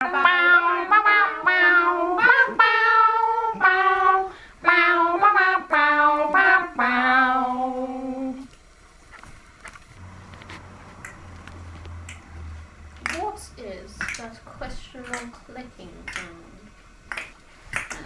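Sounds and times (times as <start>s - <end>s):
person singing with vibrato: 0.0s - 8.5s.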